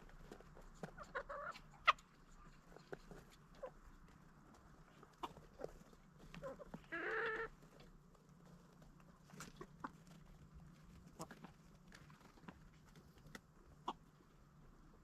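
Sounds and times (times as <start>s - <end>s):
chickens clucking: 0.0s - 12.6s, 13.6s - 14.6s
drawn-out chicken call: 0.9s - 2.6s, 6.4s - 7.6s.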